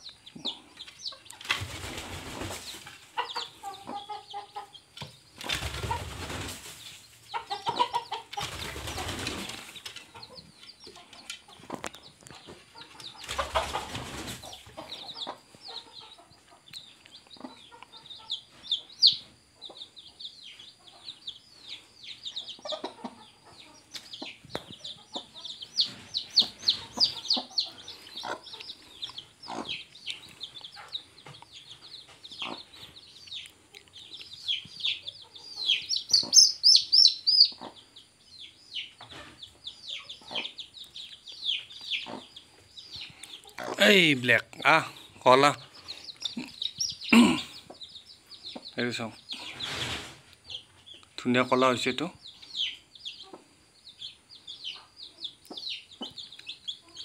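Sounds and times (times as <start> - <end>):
chicks peeping: 0.0 - 57.0
flapping or rustling: 5.4 - 6.9, 8.4 - 9.8
hen calling: 35.6 - 37.6.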